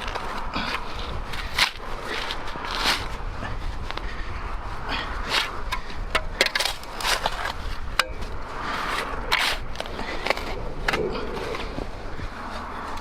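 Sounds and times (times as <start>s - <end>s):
steady low rumble: 0.0s - 13.0s
tools scraping and knocking: 5.4s - 11.7s.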